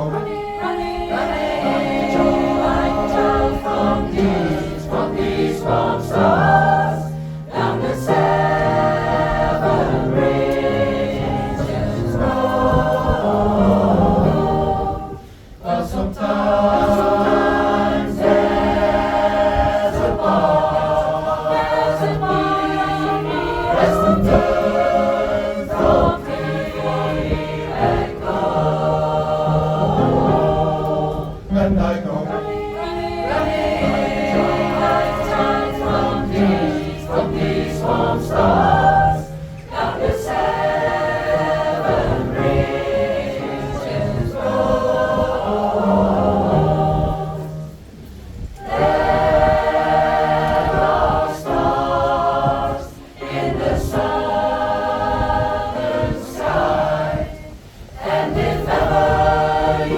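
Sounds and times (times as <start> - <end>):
pop choir singing: 0.0 - 59.9.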